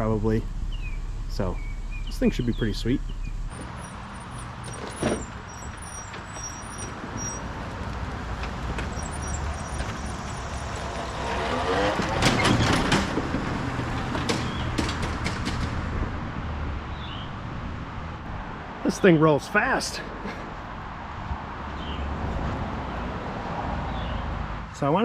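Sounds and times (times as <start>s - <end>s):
metallic rattling and clanking: 0.0s - 7.5s, 8.4s - 16.1s
vehicle engine running: 0.0s - 12.4s.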